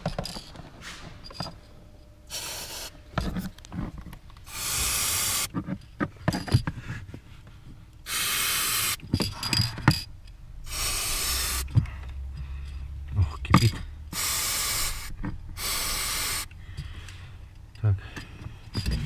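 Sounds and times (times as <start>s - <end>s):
aerosol can spraying: 2.3s - 3.0s, 4.5s - 5.5s, 8.1s - 9.0s, 10.7s - 11.7s, 14.2s - 16.5s.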